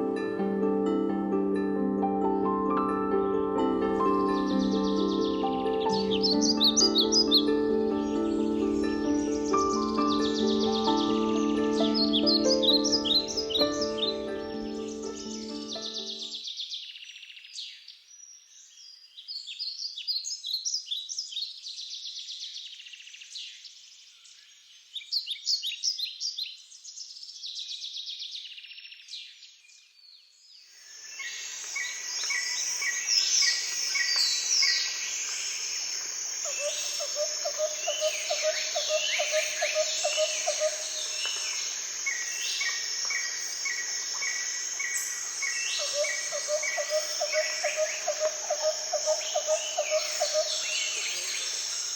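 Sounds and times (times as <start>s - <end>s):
birds chirping and singing: 3.9s - 22.5s, 36.3s - 51.9s
bird calling repeated notes: 36.5s - 41.2s.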